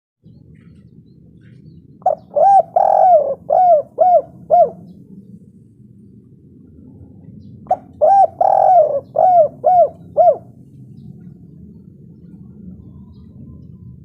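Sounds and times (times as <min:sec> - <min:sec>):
low background rumble: 0:00.2 - 0:14.0
dove cooing: 0:00.6 - 0:05.3, 0:07.7 - 0:11.4.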